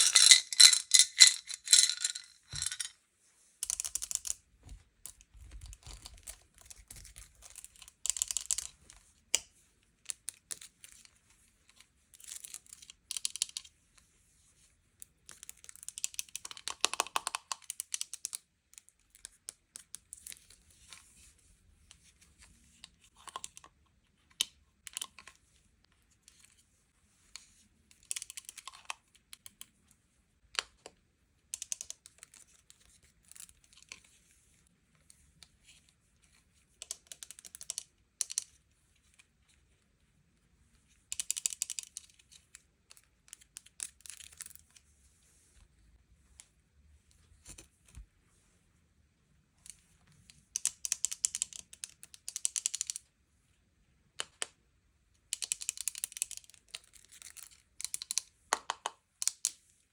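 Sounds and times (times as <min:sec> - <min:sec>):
plastic packaging clicks and taps: 0:58.5 - 0:59.4.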